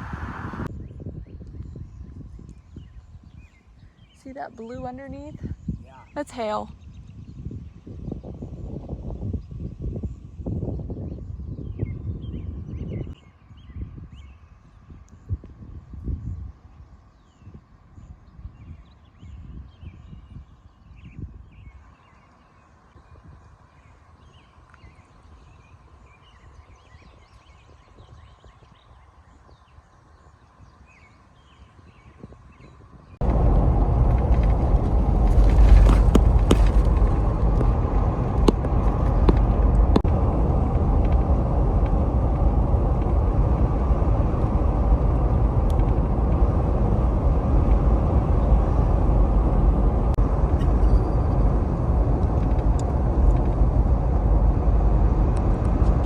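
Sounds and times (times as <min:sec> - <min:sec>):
vehicle driving rumble: 0:33.2 - 0:56.0.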